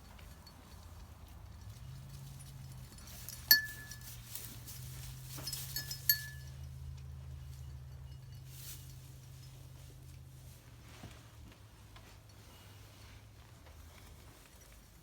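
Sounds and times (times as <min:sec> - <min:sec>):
sheep bell clinking: 0:00.0 - 0:10.2.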